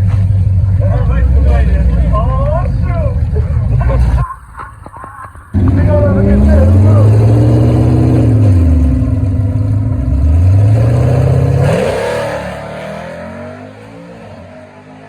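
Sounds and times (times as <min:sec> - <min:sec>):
car engine revving hard: 0:05.5 - 0:15.0.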